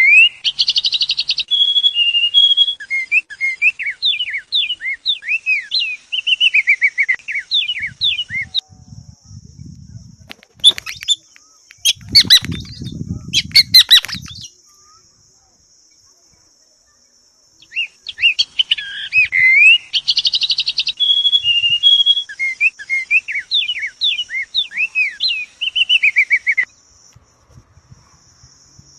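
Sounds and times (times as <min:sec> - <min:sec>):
small bird chirping: 0:00.0 - 0:28.9
scuffling and flapping: 0:10.2 - 0:11.2.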